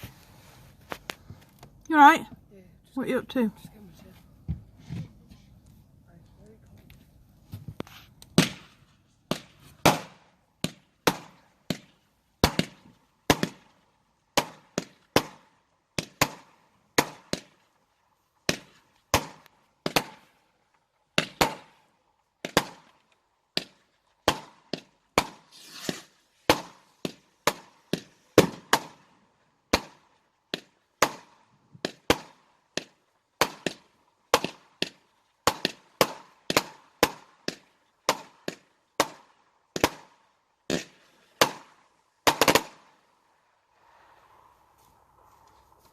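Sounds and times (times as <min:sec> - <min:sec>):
fireworks banging: 0:07.5 - 0:17.6, 0:18.4 - 0:20.4, 0:21.1 - 0:21.8, 0:22.4 - 0:43.0
crackle after bangs: 0:18.4 - 0:43.0
brief hiss: 0:25.5 - 0:26.2.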